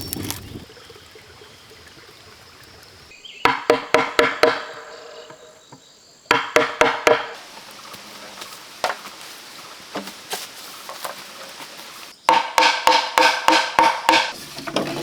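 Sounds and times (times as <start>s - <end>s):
blade chopping bamboo: 3.5s - 5.0s, 6.3s - 7.4s, 12.3s - 14.4s.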